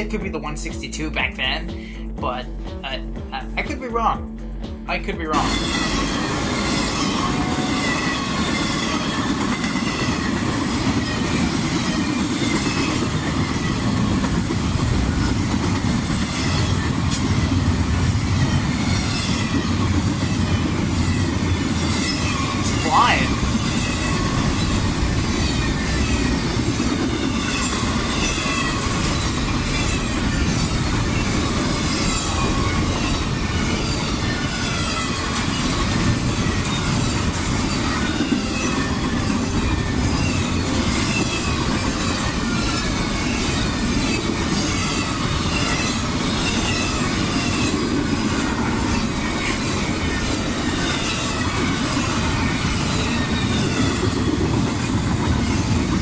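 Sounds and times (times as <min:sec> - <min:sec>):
freight train rumbling past: 0:00.0 - 0:56.0
wheels squealing: 0:18.4 - 0:55.8.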